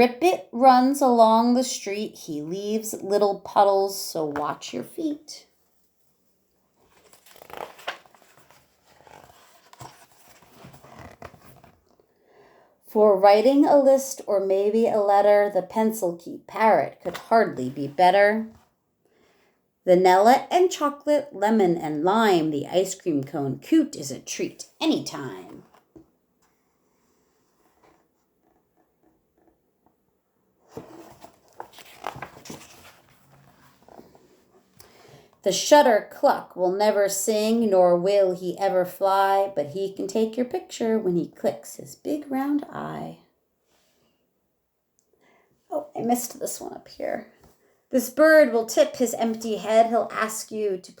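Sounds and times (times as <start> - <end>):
book pages rustling: 6.8 - 12.1, 25.4 - 29.5, 30.6 - 34.7.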